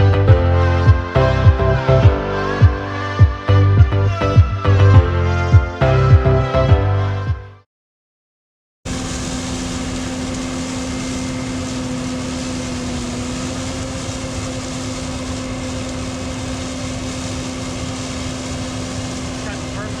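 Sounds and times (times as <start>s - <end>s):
farm machine engine running: 8.9s - 20.0s.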